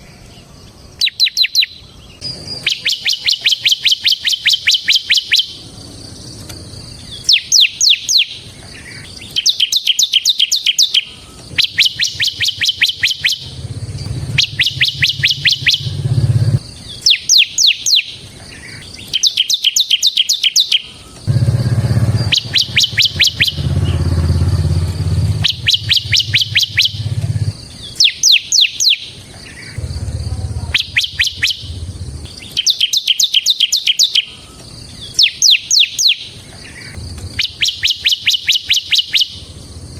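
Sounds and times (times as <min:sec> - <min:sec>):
bird trilling song: 0:00.0 - 0:39.9
low hum: 0:12.3 - 0:16.6, 0:21.3 - 0:27.6, 0:29.8 - 0:32.5.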